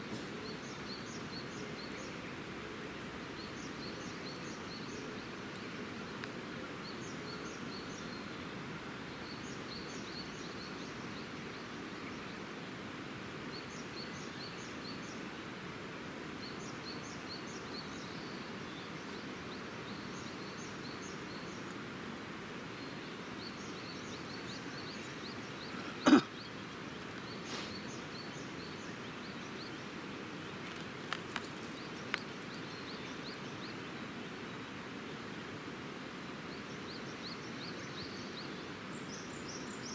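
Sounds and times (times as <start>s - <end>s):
steady outdoor hiss: 0.0s - 39.9s
bird chirping: 30.6s - 34.0s.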